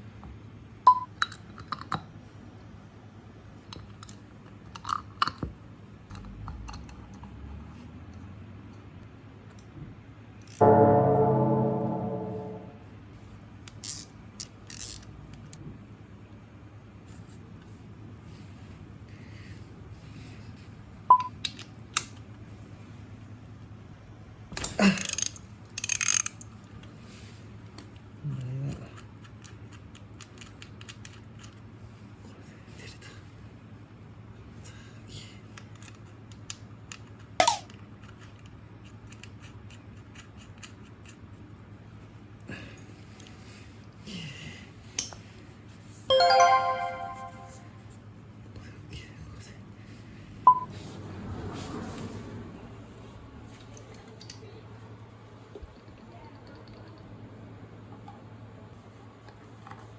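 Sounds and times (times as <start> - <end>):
metallic ring: 10.6 - 12.8
low hum: 10.6 - 13.0.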